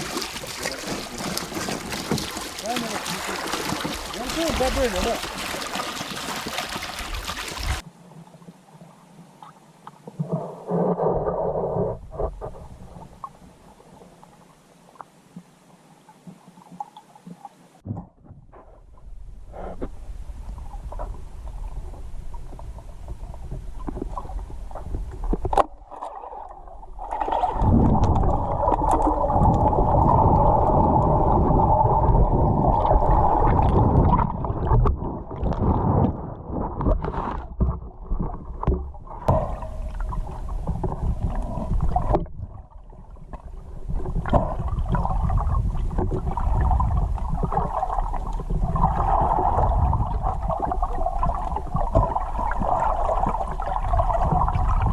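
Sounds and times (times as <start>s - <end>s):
boat engine hum: 0.0s - 7.8s
water noise: 0.0s - 18.1s, 18.9s - 54.9s.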